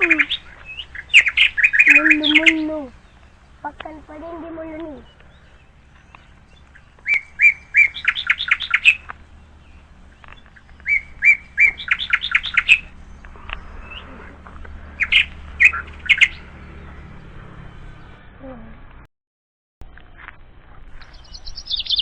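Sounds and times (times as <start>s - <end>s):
bird singing rapid high notes: 0.0s - 18.3s, 21.0s - 22.0s
sharp bird calls: 0.0s - 18.4s, 20.9s - 22.0s.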